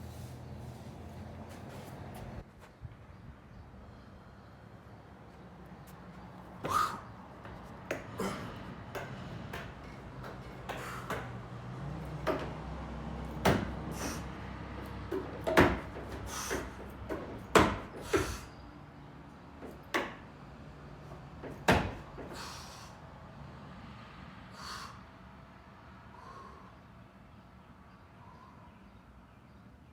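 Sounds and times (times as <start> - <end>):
knocks and thuds: 6.7 - 14.3, 15.0 - 18.4, 21.3 - 22.4.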